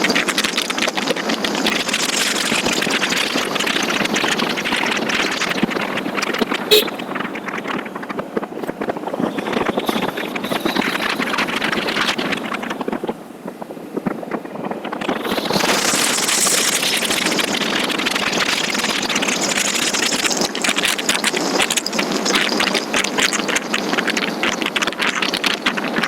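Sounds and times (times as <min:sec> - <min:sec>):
wind rushing: 0:00.0 - 0:19.2
road noise: 0:00.0 - 0:26.0
wind fluttering on microphone: 0:00.0 - 0:26.0
motorcycle engine running: 0:01.4 - 0:13.0.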